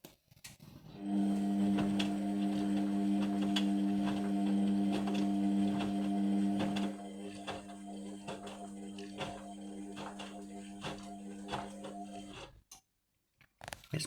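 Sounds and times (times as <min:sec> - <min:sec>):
washing machine hum: 0:01.0 - 0:12.5
washing machine clicks and knocks: 0:01.2 - 0:12.4.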